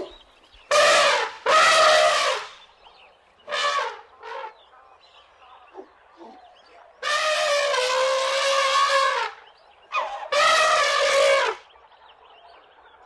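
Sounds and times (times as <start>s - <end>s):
elephants trumpeting: 0.7s - 2.6s, 3.5s - 4.6s, 7.0s - 11.6s.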